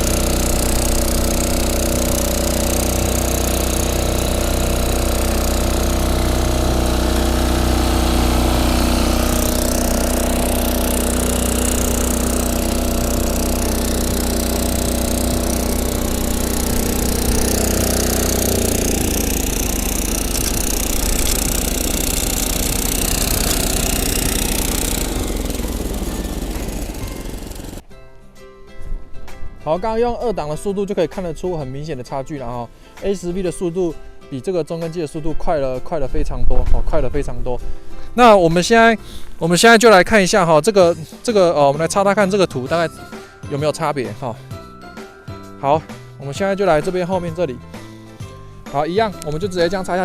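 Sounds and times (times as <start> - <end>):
small engine running: 0.0 - 27.8
tines clattering in soil: 0.0 - 27.8, 48.7 - 50.0.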